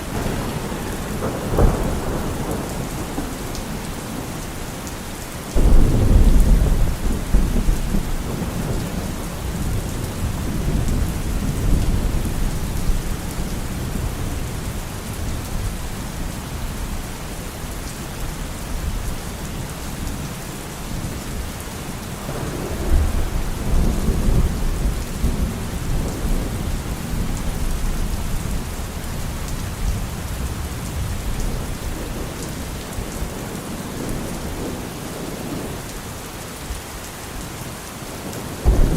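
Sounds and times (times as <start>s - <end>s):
rolling thunder: 0.0s - 4.8s, 5.5s - 15.9s, 22.2s - 35.8s, 38.6s - 38.9s
heavy rain: 0.0s - 38.9s.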